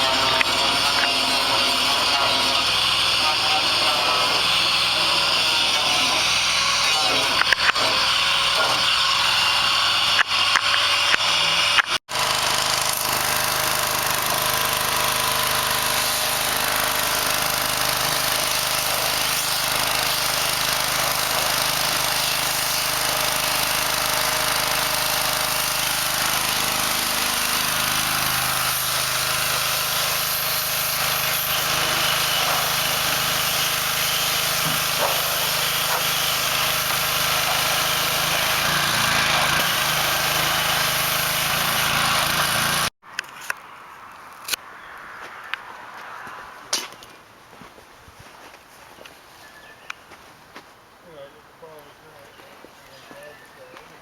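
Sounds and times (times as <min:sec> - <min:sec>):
small engine running: 0:00.0 - 0:42.9.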